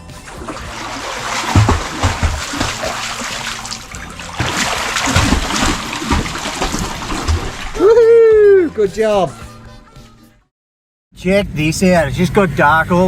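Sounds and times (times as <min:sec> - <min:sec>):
water splashing in a pool: 0:00.0 - 0:08.0
heavy splashes: 0:00.0 - 0:08.1.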